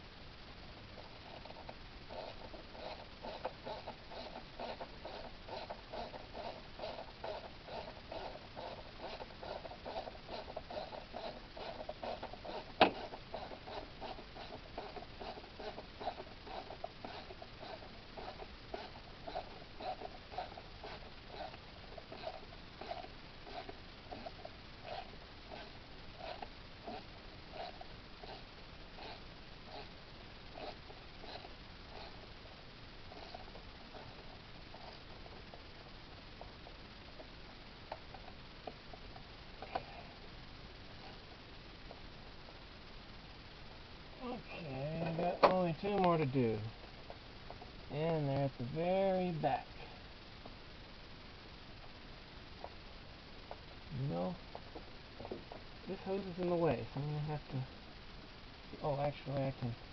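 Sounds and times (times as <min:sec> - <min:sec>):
ratchet clicking rapidly: 0:01.2 - 0:28.4, 0:29.0 - 0:29.9, 0:30.5 - 0:32.2.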